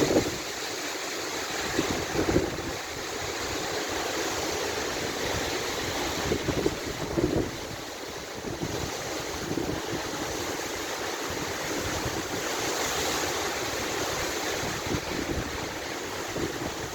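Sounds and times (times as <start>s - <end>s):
wind buffeting microphone: 0.0s - 0.5s, 1.6s - 3.8s, 5.1s - 10.6s, 14.3s - 16.9s
wind storm blowing: 0.0s - 0.6s, 1.6s - 3.7s, 4.8s - 10.5s, 13.6s - 16.9s.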